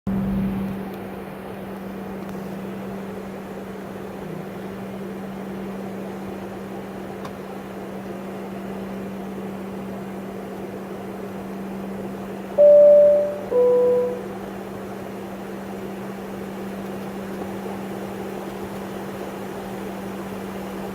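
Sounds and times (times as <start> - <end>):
airliner cabin hum: 12.1 - 14.6
two-note cabin chime: 12.6 - 14.3.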